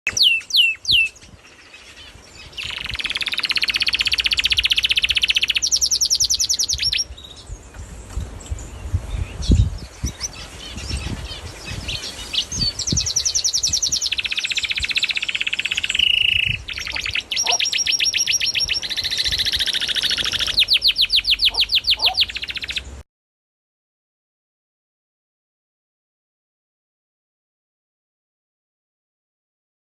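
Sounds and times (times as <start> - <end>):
small bird trilling: 0.1 - 7.1, 10.0 - 22.9.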